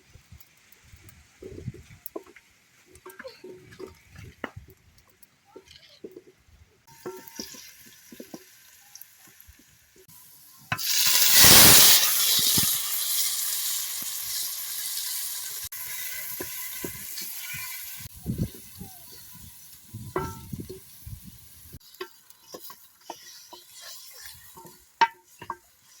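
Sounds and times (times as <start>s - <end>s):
sizzling in a hot pan: 6.9s - 26.0s
cooking knocks and clinks: 20.2s - 20.8s, 21.8s - 26.0s.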